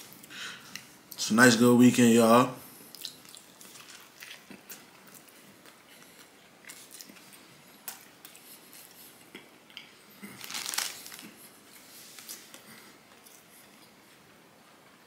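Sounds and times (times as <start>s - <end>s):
person chewing soft food: 2.8s - 14.0s.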